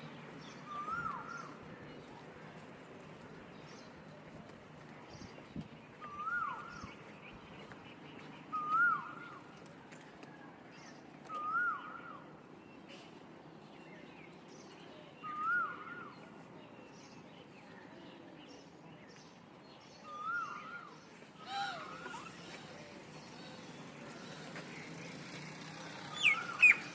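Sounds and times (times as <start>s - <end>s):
small birds chirping: 10.7s - 26.9s.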